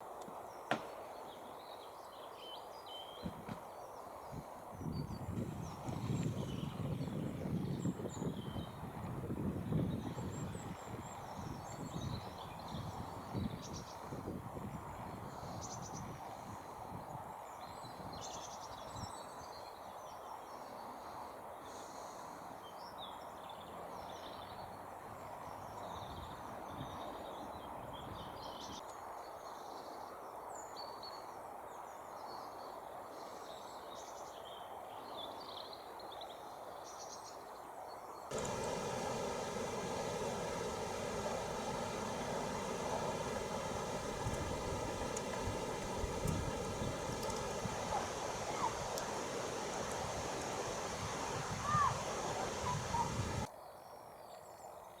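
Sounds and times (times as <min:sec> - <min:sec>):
background hiss: 0:38.2 - 0:53.5
small birds chirping: 0:38.3 - 0:53.5.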